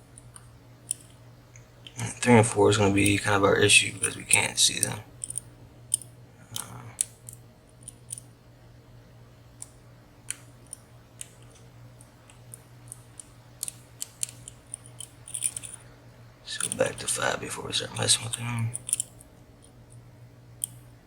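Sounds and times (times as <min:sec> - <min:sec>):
faint steady hum: 0:00.0 - 0:21.0
lock picks clicking in padlock: 0:05.2 - 0:08.2, 0:12.5 - 0:15.8, 0:18.3 - 0:19.2.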